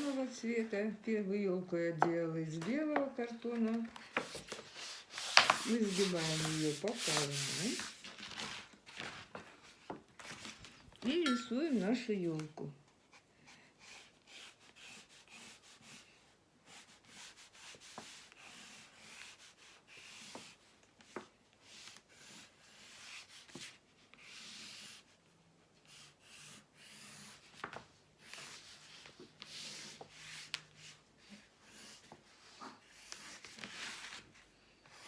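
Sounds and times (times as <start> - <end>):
drawing tool scratching cardboard: 4.2 - 8.0, 13.8 - 25.2, 25.8 - 27.6, 28.2 - 34.1.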